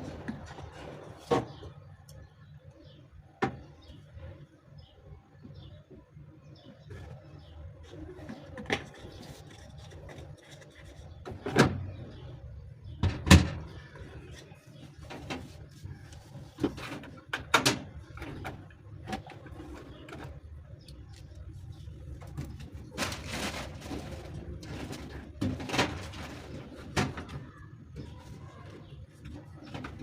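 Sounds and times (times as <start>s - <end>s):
laundry knocks and clunks: 13.0s - 13.7s.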